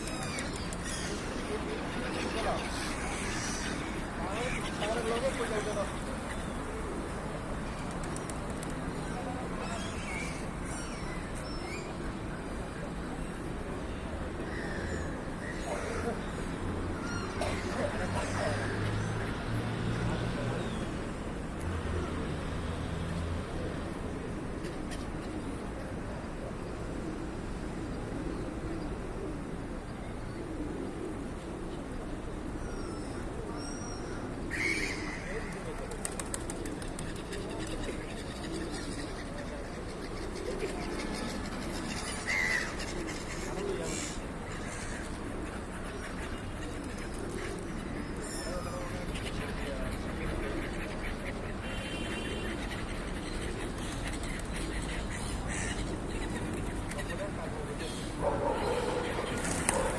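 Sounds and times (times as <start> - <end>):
background hubbub: 0.0 - 59.9
outdoor city noise: 0.0 - 59.9
birds calling: 30.3 - 59.9.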